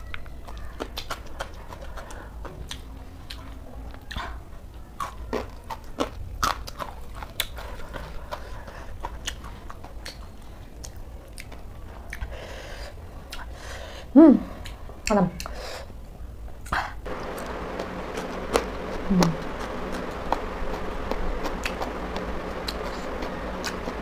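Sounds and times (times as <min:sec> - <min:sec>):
chewing crunchy cabbage: 0:00.0 - 0:12.4.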